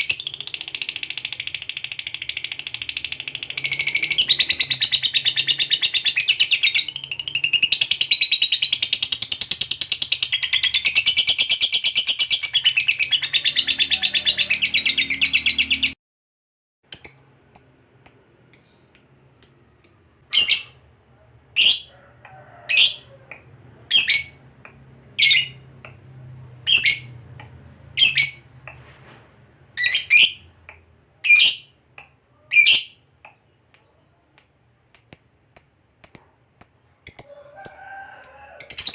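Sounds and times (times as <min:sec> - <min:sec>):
lovebird chattering trill: 0:16.9 - 0:20.8, 0:33.8 - 0:38.9
sharp bird chirps: 0:16.9 - 0:20.9.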